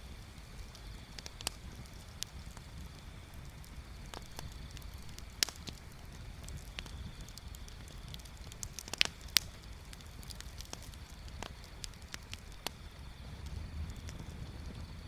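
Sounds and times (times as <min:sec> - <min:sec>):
bonfire crackling: 0:00.0 - 0:15.0
burning wood popping: 0:00.0 - 0:15.0.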